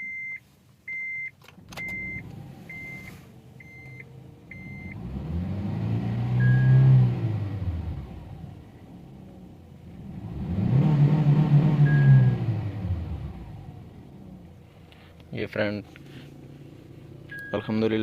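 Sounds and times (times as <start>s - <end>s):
car engine revving: 1.8s - 3.5s, 4.1s - 14.8s
dashboard chime beeping: 17.3s - 17.7s.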